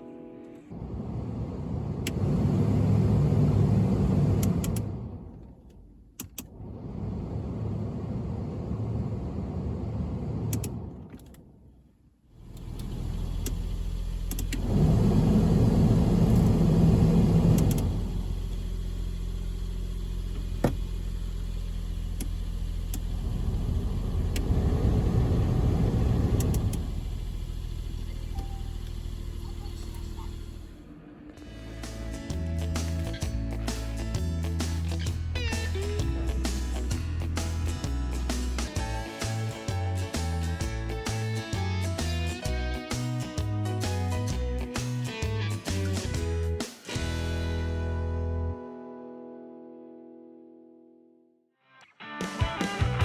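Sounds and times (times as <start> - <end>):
van engine running: 0.7 - 11.3, 12.4 - 42.8.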